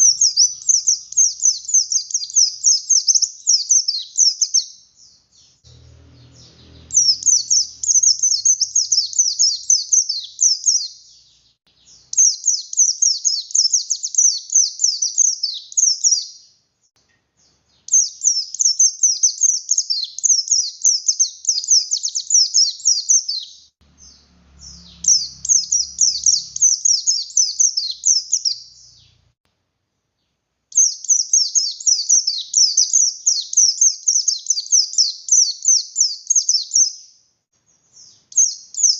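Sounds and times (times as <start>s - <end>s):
bird singing high chattering notes: 0.0s - 16.6s, 17.4s - 29.3s, 30.8s - 37.1s, 37.8s - 38.9s.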